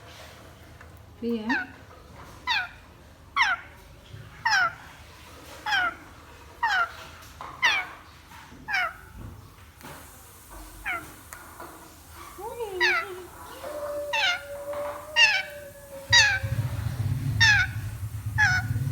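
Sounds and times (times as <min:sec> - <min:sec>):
parrot call falling in pitch: 0:12.8 - 0:18.9.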